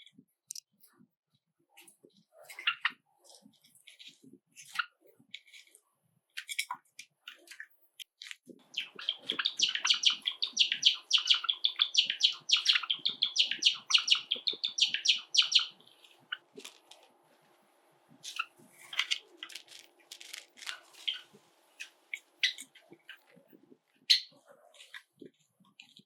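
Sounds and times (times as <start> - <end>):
sparrow chirping and chattering: 8.6 - 16.7, 18.2 - 23.4, 24.0 - 24.9.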